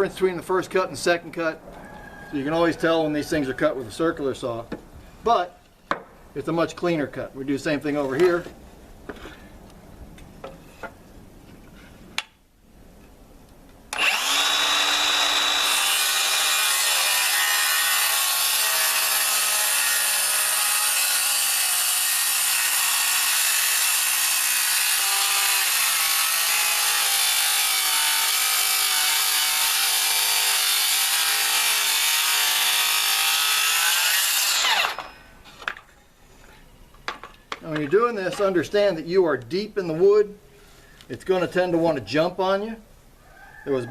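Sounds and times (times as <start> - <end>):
circular saw cutting timber: 13.9 - 35.3.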